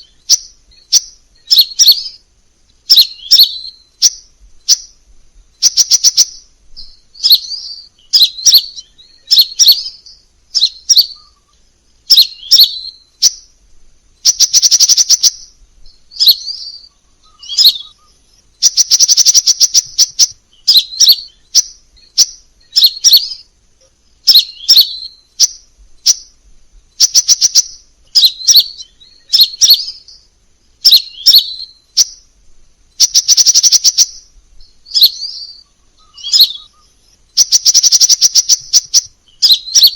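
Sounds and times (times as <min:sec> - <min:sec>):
bird rattling trills: 0:00.0 - 0:02.2, 0:02.8 - 0:05.0, 0:05.6 - 0:13.5, 0:14.2 - 0:23.5, 0:24.2 - 0:30.1, 0:33.0 - 0:39.9
bird high chirps: 0:00.0 - 0:13.6, 0:14.2 - 0:39.9.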